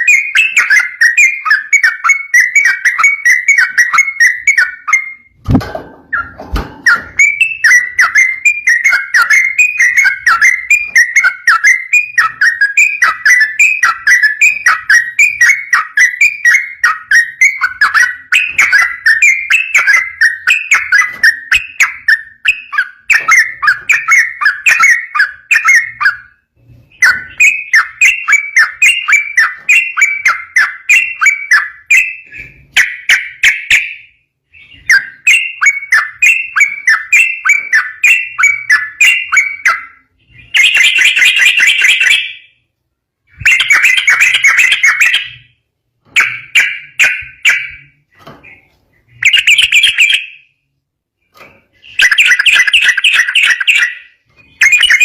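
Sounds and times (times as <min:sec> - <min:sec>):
bulbul chattering song: 0:00.0 - 0:42.6, 0:43.3 - 0:45.6, 0:46.2 - 0:50.6, 0:51.7 - 0:55.0.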